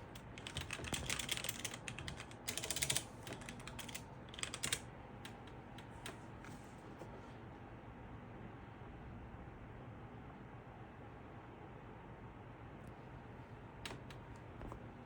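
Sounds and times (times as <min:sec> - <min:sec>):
rapid typing-like clicks: 0:00.1 - 0:06.2.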